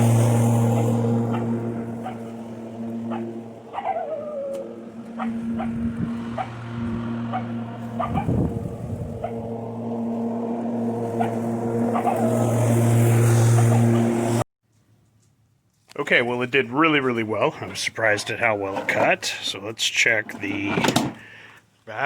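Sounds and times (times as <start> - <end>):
electric lawn mower running: 0.0 - 14.4.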